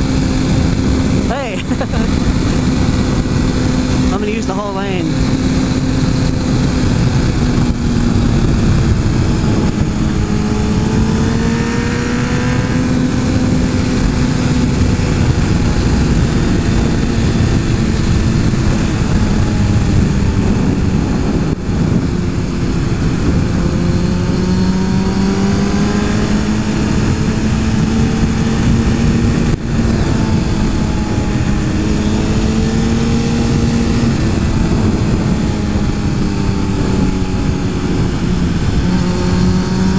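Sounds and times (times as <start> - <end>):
motorcycle engine cruising: 0.0 - 39.9
rush of wind noise: 0.0 - 39.9.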